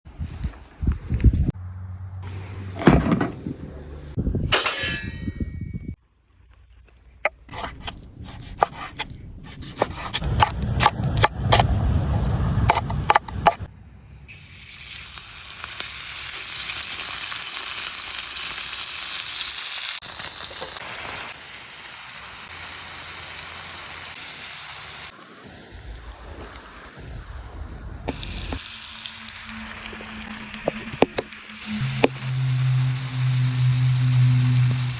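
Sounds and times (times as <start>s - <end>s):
meat frying in a pan: 14.3s - 25.2s, 28.1s - 34.9s.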